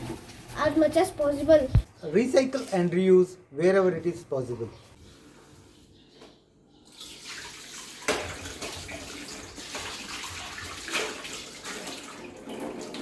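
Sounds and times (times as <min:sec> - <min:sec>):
tap water running into sink: 0:06.9 - 0:13.0.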